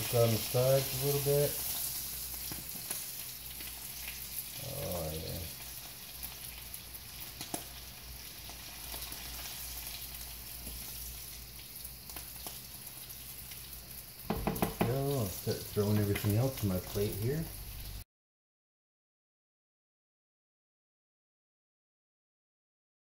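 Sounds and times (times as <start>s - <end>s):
fish sizzling in a skillet: 0.0s - 18.0s.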